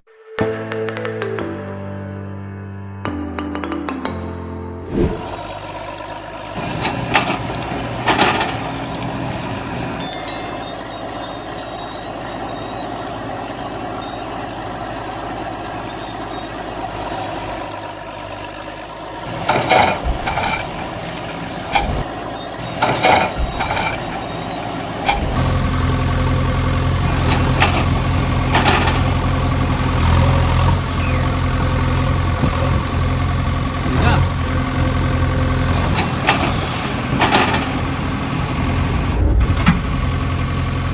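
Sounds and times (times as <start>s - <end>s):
engine idling: 5.4s - 9.9s, 10.7s - 40.9s
clattering knocks: 19.4s - 22.1s.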